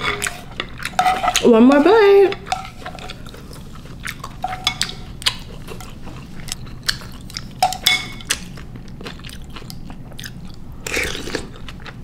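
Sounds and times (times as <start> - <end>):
chewing noodles: 2.7 - 7.6, 8.2 - 12.0.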